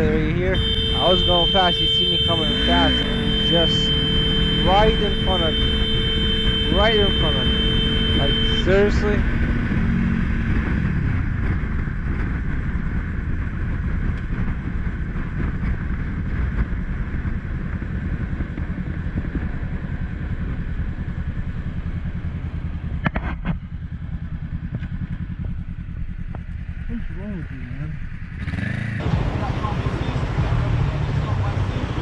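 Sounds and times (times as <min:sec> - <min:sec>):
motorcycle rumbling: 0:00.0 - 0:32.0.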